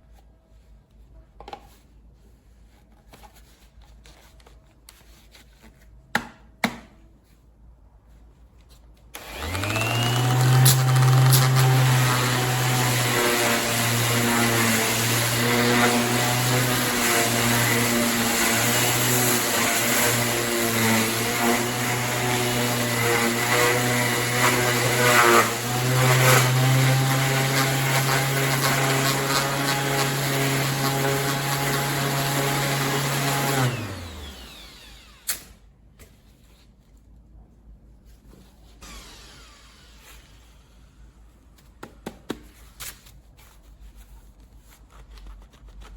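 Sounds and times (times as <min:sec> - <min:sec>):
orbital sander running: 0:09.2 - 0:35.3, 0:38.8 - 0:40.8.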